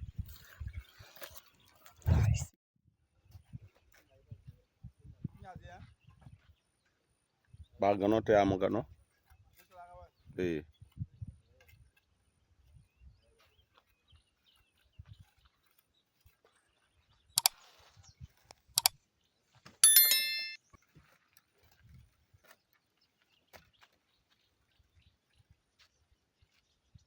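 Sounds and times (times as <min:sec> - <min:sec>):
ringing metal strike: 0:19.8 - 0:20.6.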